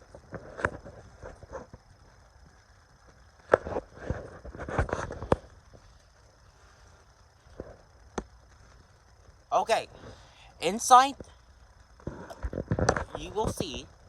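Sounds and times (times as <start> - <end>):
faint high hiss: 4.8 - 14.0.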